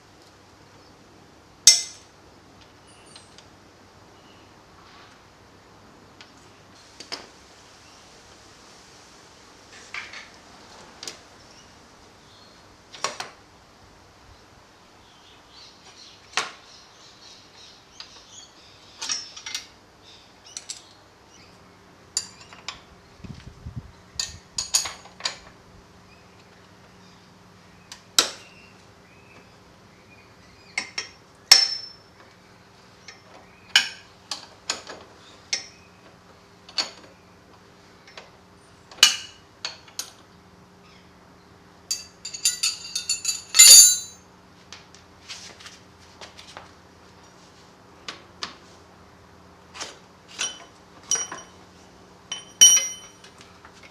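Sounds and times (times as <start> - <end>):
metallic clinks of hand tools: 41.9 - 44.2, 52.3 - 53.2.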